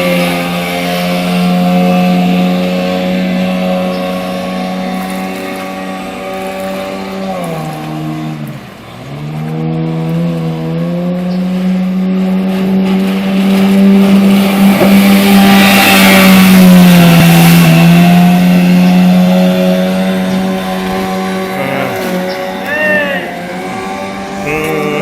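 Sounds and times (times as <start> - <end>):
motorboat engine running hard: 0.0 - 25.0.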